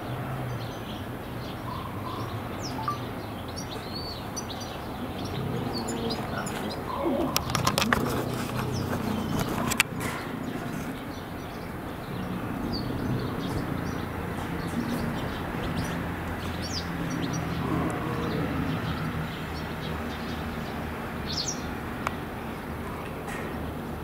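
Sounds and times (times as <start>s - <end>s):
high bird chirps: 1.7s - 4.2s.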